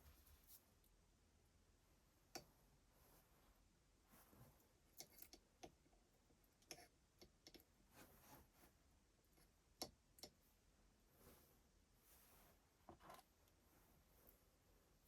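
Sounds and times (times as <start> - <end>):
faint clicks and taps: 4.9 - 7.8, 9.3 - 10.4.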